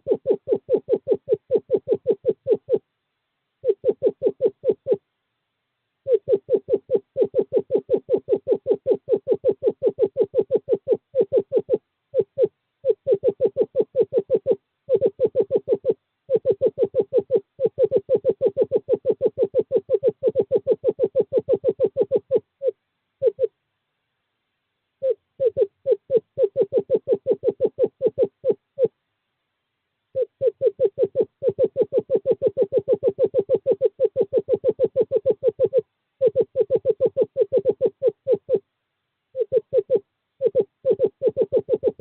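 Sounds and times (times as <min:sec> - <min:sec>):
owl trilling hoots: 0:00.0 - 0:02.9, 0:03.6 - 0:05.0, 0:06.0 - 0:23.6, 0:25.0 - 0:29.0, 0:30.1 - 0:38.7, 0:39.3 - 0:42.0.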